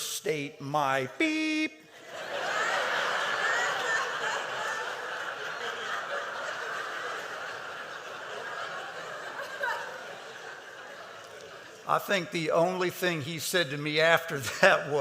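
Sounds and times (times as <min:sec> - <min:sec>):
audience laughing: 0:01.2 - 0:12.3.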